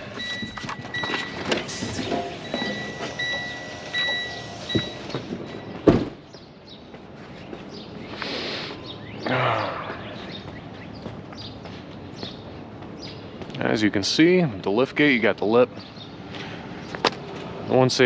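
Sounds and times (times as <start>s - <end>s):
high beep: 2.2s - 5.8s
clanks and knocks at truck: 4.7s - 6.2s.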